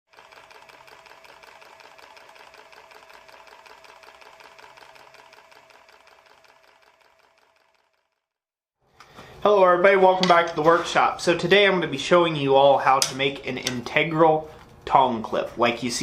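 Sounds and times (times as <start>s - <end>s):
fast mechanical clatter: 0.1s - 8.2s.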